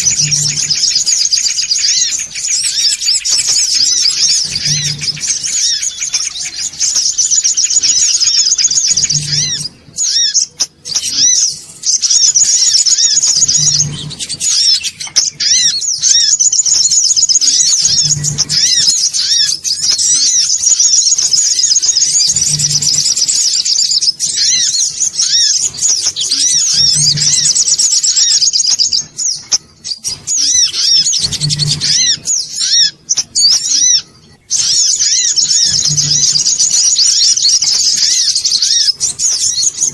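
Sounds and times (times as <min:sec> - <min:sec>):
bird chattering high-pitched: 0:00.0 - 0:39.9.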